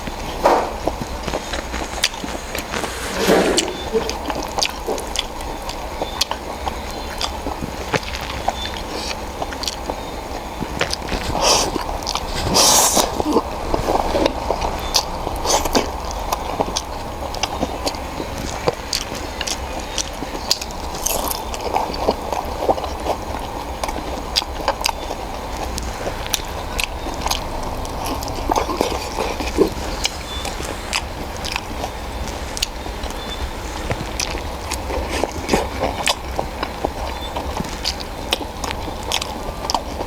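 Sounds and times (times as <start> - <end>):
chewing noodles with wet clicks: 5.7 - 13.5, 18.9 - 40.0.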